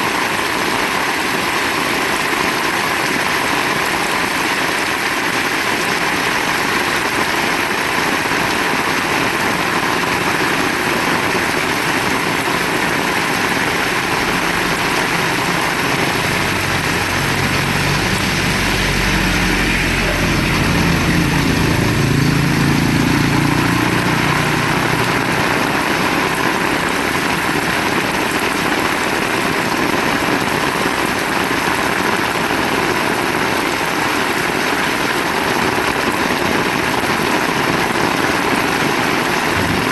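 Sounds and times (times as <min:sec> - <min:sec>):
heavy rain: 0:00.1 - 0:39.9
vehicle engine passing: 0:07.6 - 0:28.1, 0:37.6 - 0:39.9.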